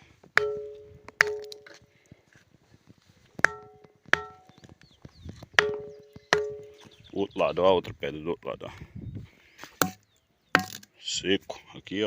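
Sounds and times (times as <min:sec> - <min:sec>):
boulder struck ringing like a bell: 0:00.4 - 0:01.7, 0:03.4 - 0:04.6, 0:05.6 - 0:06.9.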